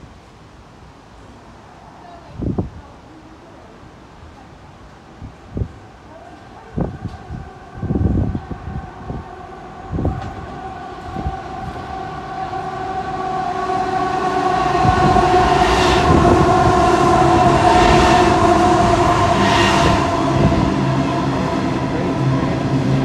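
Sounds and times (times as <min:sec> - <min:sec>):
rumble of freight wagons: 0:02.2 - 0:23.0
diesel locomotive engine: 0:04.7 - 0:23.0.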